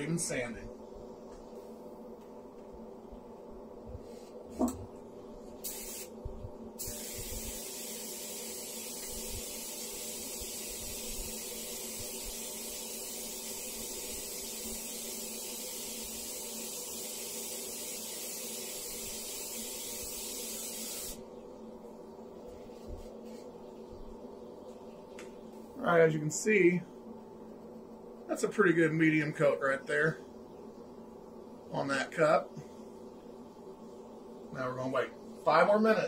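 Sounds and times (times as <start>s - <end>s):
steady low hum: 0.0s - 36.0s
spray gun hissing: 5.6s - 6.1s, 6.8s - 21.2s.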